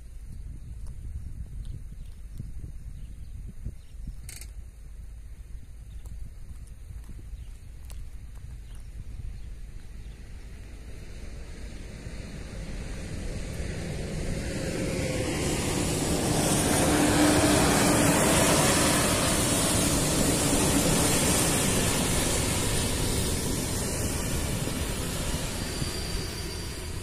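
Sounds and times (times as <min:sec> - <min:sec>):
passenger train rumbling: 0:09.2 - 0:27.0.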